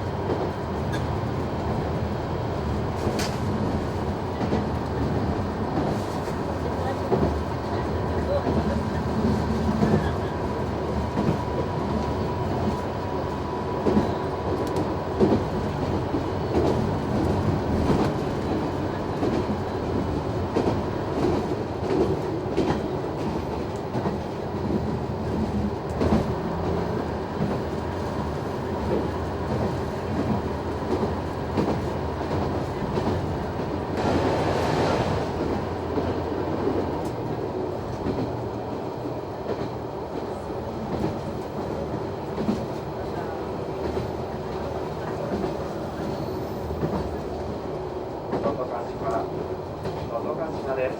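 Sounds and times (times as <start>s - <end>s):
train interior rumble: 0.0s - 50.9s
brief rush of noise: 34.0s - 35.5s.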